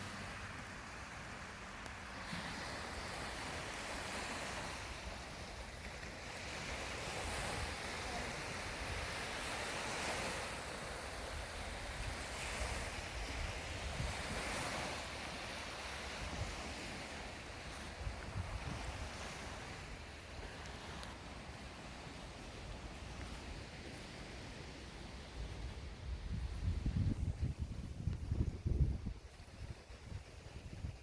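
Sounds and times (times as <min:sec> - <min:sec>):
wind buffeting microphone: 0:08.6 - 0:15.0, 0:15.9 - 0:20.2, 0:21.4 - 0:31.0.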